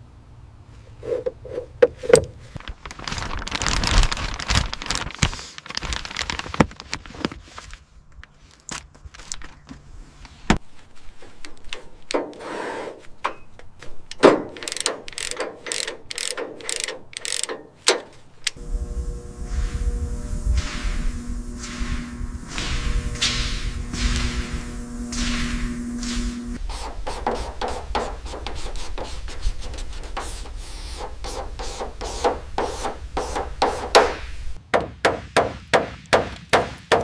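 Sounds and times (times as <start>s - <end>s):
metal tools clicking and clanking: 14.1s - 18.6s
hissing noise: 18.6s - 28.5s.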